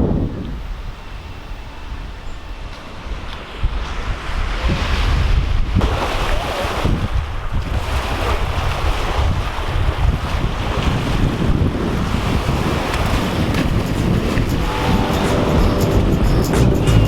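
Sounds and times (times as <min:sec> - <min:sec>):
wind buffeting microphone: 0:00.0 - 0:17.0
waves breaking on beach: 0:02.6 - 0:16.8.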